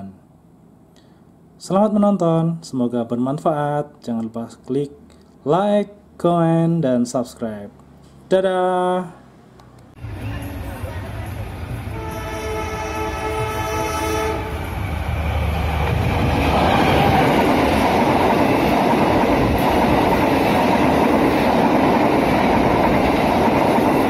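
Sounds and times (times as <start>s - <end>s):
train wheels rushing on rails: 10.0s - 24.0s
locomotive horn: 11.9s - 14.8s.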